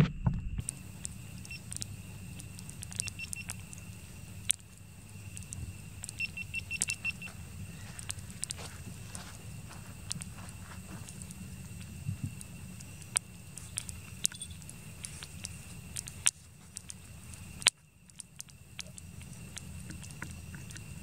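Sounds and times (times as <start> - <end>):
low hum: 0.0 - 16.2
campfire wood crackling: 0.6 - 21.0.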